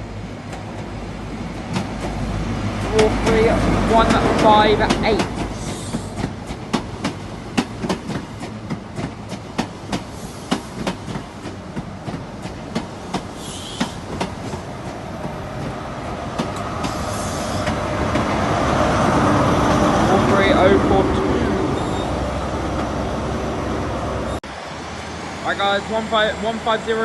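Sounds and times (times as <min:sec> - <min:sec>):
heavy train rumble: 0:00.0 - 0:27.0
train wheels clicking over rail joints: 0:00.4 - 0:19.2.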